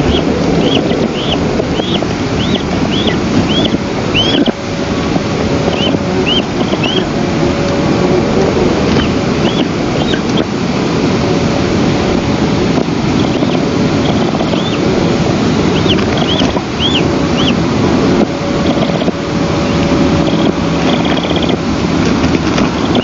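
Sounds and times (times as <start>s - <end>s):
bird call notes: 0.0s - 4.8s, 5.6s - 7.2s, 8.9s - 10.5s, 13.2s - 14.9s, 15.6s - 17.6s
wind rushing over microphone: 0.0s - 23.0s.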